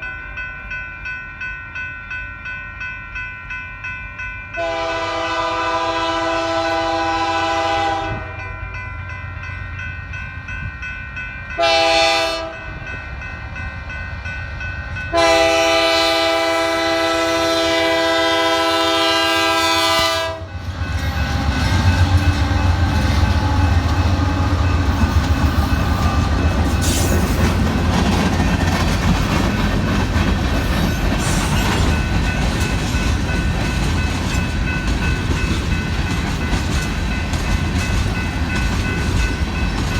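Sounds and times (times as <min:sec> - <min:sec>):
locomotive horn blasts: 0:04.6 - 0:08.5, 0:11.6 - 0:12.7, 0:15.1 - 0:20.7
locomotive engine rumble: 0:19.8 - 0:39.9.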